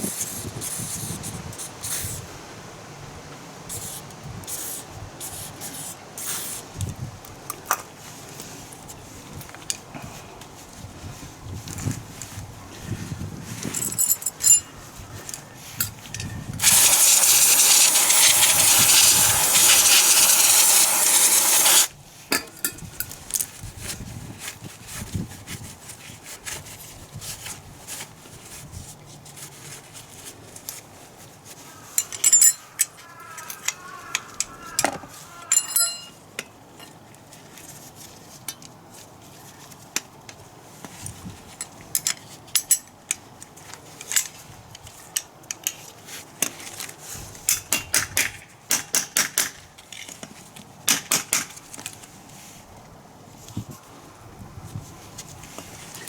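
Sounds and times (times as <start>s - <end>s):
metal tools clinking: 13.7s - 14.7s, 35.5s - 36.2s.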